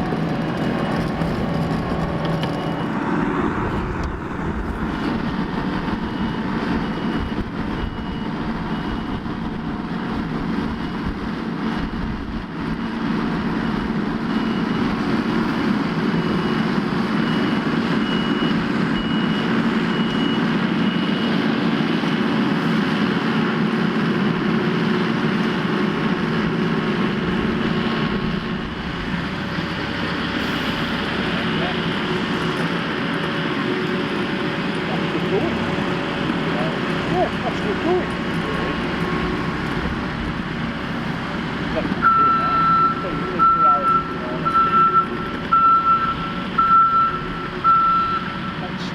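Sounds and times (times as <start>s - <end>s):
diesel engine under load: 0.0s - 48.9s
high-pitched beep: 42.0s - 48.6s.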